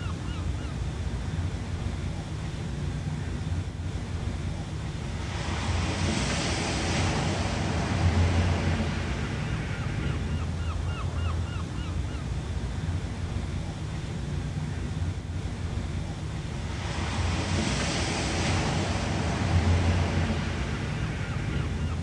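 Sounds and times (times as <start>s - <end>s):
ocean surf: 0.0s - 22.0s
wave breaking: 5.1s - 10.2s, 16.4s - 22.0s.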